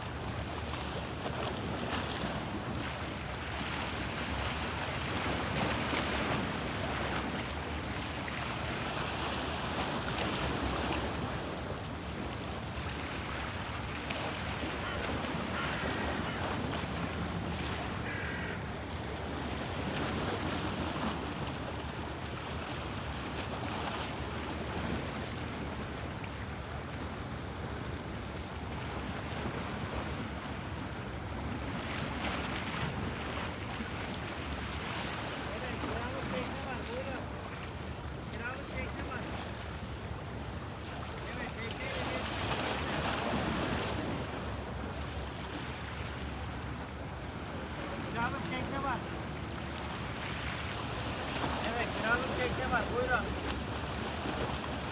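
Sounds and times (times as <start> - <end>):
sea waves lapping: 0.0 - 54.9.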